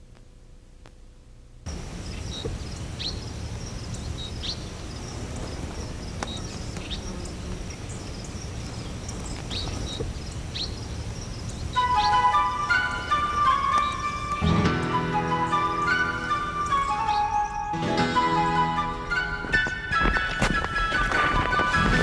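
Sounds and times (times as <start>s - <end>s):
steady noisy background: 0.0s - 14.5s
birds chirping: 1.7s - 22.0s.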